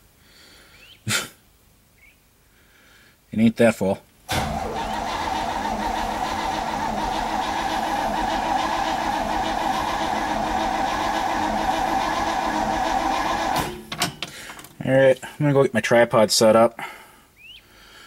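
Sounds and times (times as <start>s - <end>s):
starter motor cranking engine: 4.3s - 14.1s.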